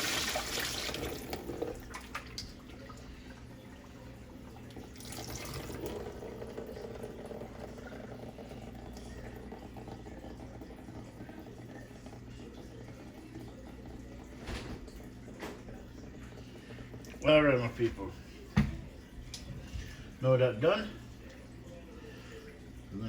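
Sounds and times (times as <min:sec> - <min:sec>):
tap running into a sink: 0:14.3 - 0:15.8, 0:17.8 - 0:19.5.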